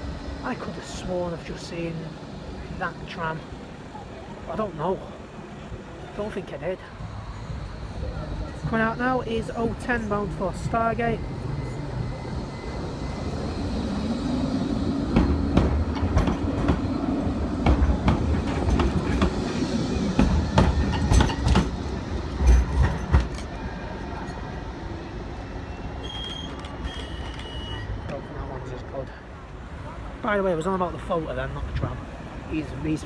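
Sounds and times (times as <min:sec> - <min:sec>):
tram motor hum rising: 0:07.0 - 0:28.2
wheels clunking over rail joints: 0:15.0 - 0:23.6.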